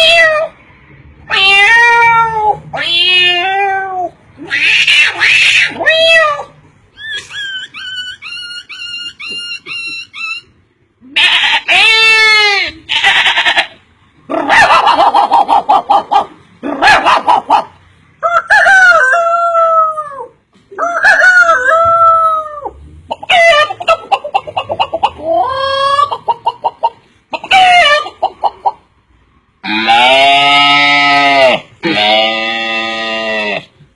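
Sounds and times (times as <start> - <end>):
chickens clucking and crowing: 13.0 - 31.2.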